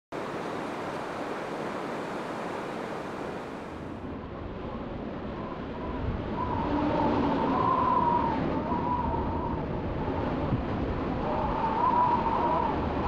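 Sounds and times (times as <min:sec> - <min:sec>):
wind buffeting microphone: 0:02.6 - 0:13.0.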